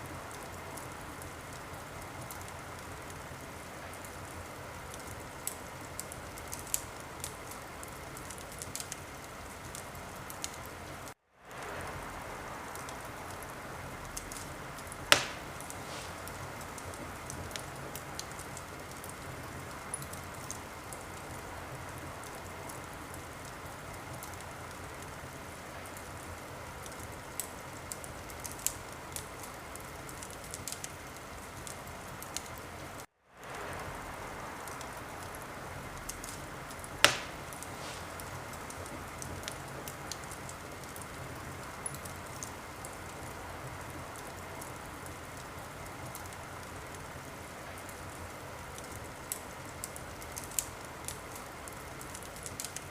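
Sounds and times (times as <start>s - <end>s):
soft hiss: 0.0s - 52.9s
wood fire crackling: 0.0s - 52.9s
small pops: 14.2s - 17.6s, 36.1s - 41.0s
sharp loud pop: 15.1s - 15.6s, 37.0s - 38.0s.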